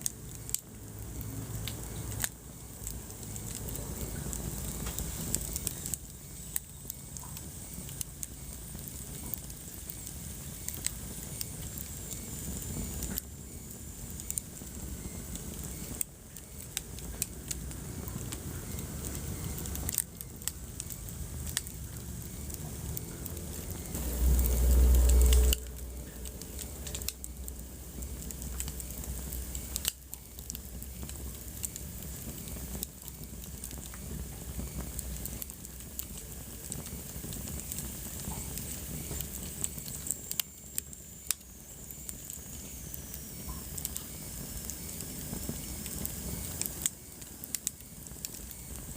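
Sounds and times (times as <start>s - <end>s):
fire popping and snapping: 0.0s - 48.9s
wood fire crackling: 0.0s - 48.9s
low rumble: 21.6s - 29.9s.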